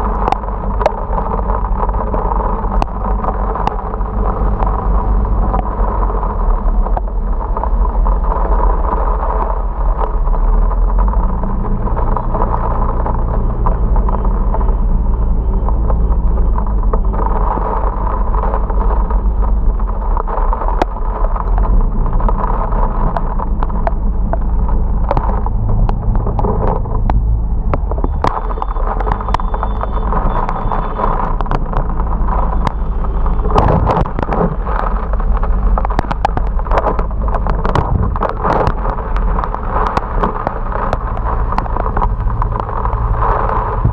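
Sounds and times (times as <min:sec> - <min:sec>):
wind and rain noise: 0:00.0 - 0:43.9.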